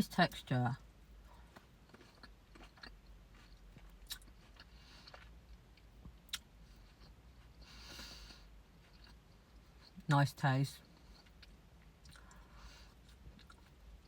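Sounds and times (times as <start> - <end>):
chewing grape: 1.3 - 7.6, 10.9 - 14.0.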